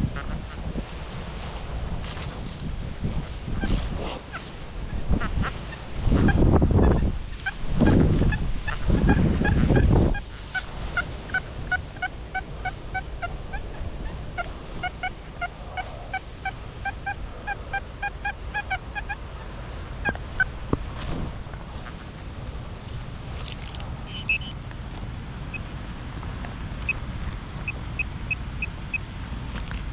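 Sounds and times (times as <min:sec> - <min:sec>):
wind rumble on microphone: 0:00.0 - 0:29.9
geese honking: 0:03.6 - 0:22.1.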